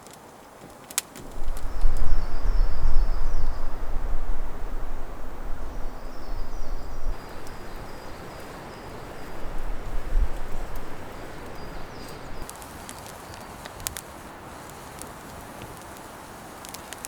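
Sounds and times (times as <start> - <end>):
bird singing: 1.2 - 12.5
gusty wind buffeting: 1.2 - 12.5.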